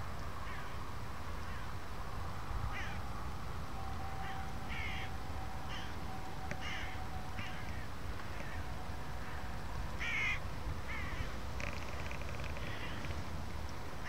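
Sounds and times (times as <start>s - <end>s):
steady low rumble: 0.0s - 14.0s
birds calling: 4.2s - 13.6s.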